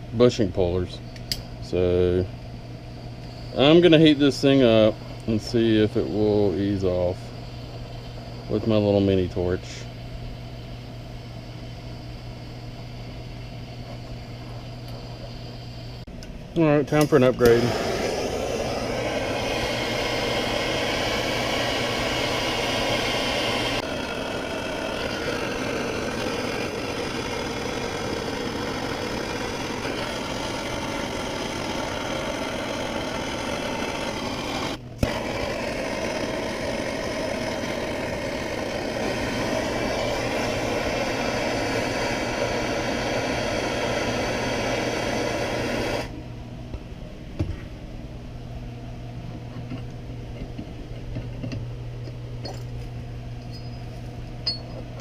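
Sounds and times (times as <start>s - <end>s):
gas torch hissing: 3.2s - 46.2s.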